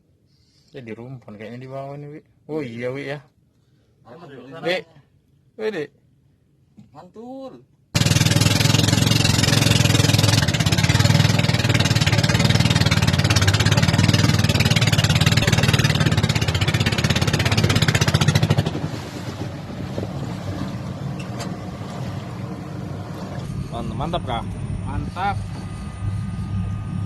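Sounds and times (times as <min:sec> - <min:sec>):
boat engine running: 0:08.0 - 0:27.0
wind and water noise: 0:08.0 - 0:27.0.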